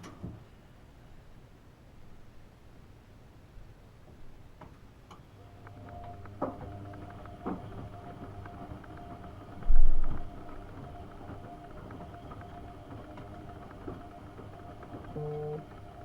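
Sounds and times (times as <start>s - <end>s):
washing machine motor hum: 5.4s - 16.0s.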